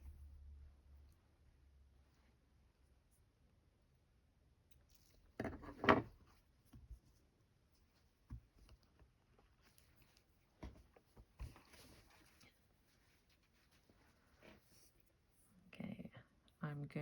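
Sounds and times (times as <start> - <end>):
fabric rustle: 9.3 - 15.5.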